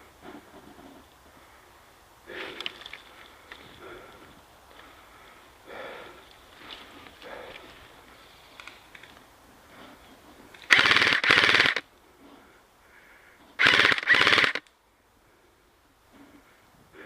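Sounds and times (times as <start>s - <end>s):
airsoft gun bursts: 10.6s - 11.8s, 13.6s - 14.7s.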